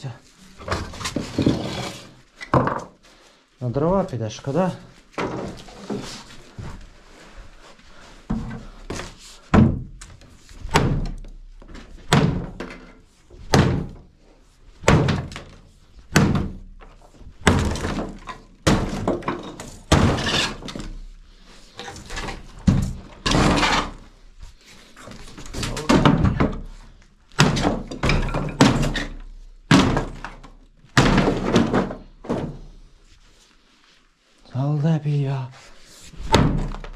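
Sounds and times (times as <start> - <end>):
heavy blows on wood: 13.4 - 21.5.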